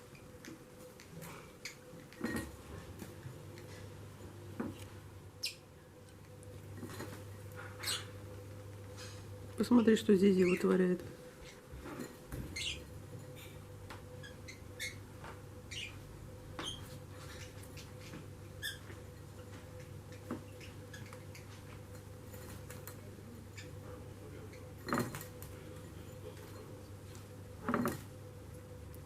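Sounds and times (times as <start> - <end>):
bird chirps: 12.5 - 12.9, 15.7 - 16.0.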